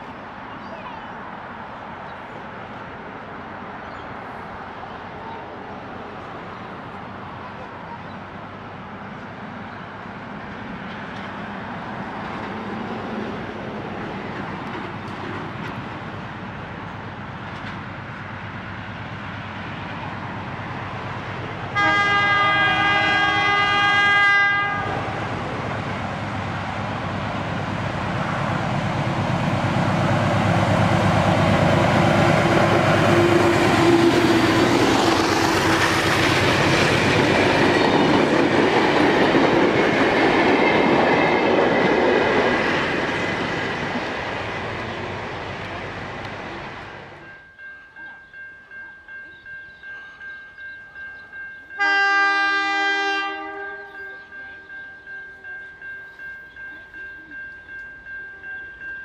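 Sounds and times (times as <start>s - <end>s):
train engine and wheels passing: 0.0s - 59.0s
locomotive multi-note horn: 21.7s - 25.2s, 32.4s - 34.4s, 51.8s - 54.2s.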